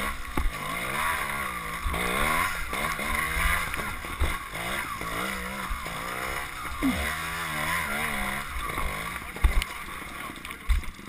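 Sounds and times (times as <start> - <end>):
motorcycle engine revving: 0.0 - 10.8.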